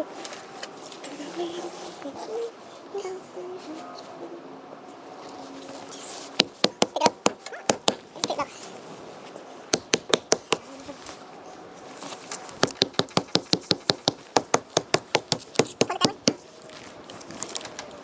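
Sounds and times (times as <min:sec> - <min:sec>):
rapid clicks or taps: 0:12.6 - 0:16.4.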